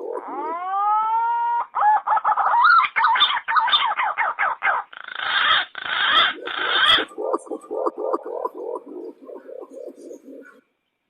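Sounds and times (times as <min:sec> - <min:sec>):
pigeon lure call whistling: 0:06.0 - 0:10.5.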